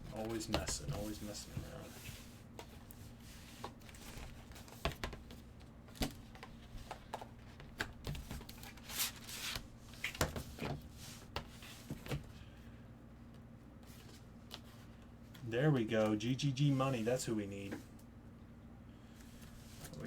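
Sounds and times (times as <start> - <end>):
cardboard and plastic rustling: 0.0 - 12.3.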